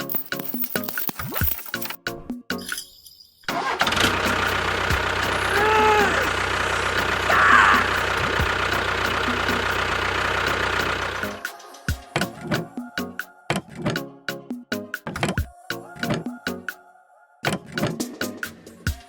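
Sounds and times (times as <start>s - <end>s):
engine idling: 3.6s - 11.4s.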